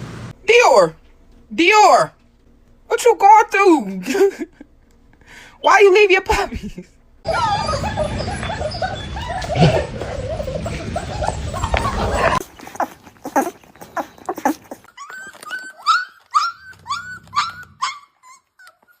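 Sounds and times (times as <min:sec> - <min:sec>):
puppies whimpering: 0:07.3 - 0:19.0.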